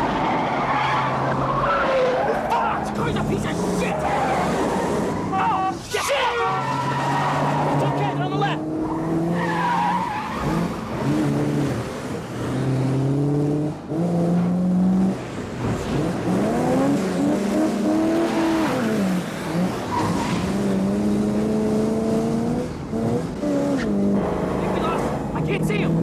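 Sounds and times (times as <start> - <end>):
tire squeal: 0.0 - 11.4, 18.1 - 20.8
car engines revving hard: 0.0 - 26.0.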